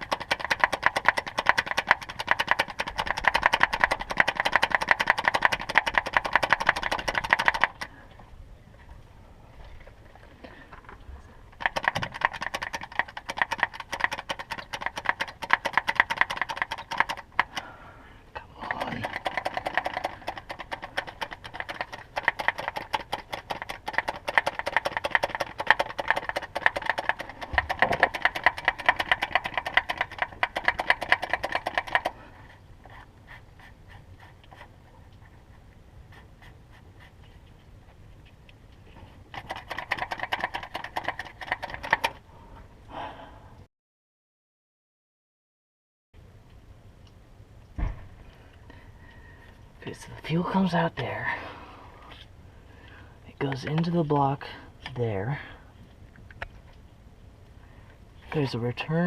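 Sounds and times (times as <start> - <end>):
fast mechanical clicking: 0.0 - 7.9, 11.5 - 17.7, 18.6 - 32.2, 39.2 - 42.2.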